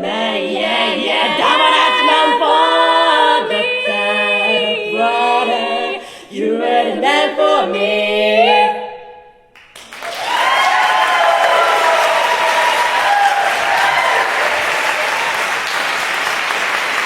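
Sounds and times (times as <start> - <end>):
quartet singing in close harmony: 0.0 - 9.2
audience applause: 9.6 - 17.0.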